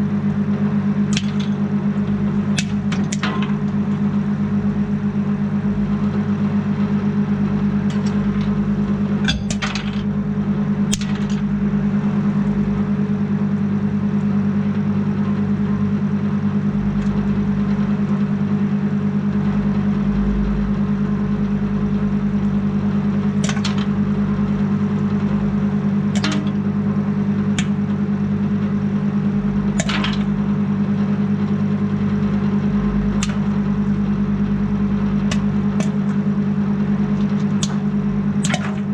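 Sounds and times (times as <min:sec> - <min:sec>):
microwave oven humming: 0:00.0 - 0:38.9
popcorn popping: 0:01.0 - 0:04.1, 0:07.7 - 0:10.2, 0:10.8 - 0:11.6, 0:22.4 - 0:30.7, 0:31.5 - 0:38.9.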